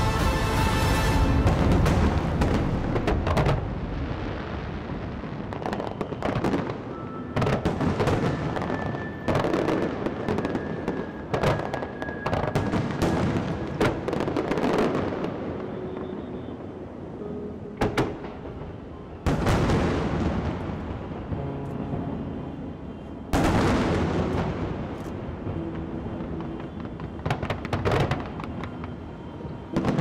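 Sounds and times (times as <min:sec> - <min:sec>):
music playing: 0:00.0 - 0:02.9
fireworks bangs and crackles: 0:00.0 - 0:17.0, 0:17.8 - 0:30.0.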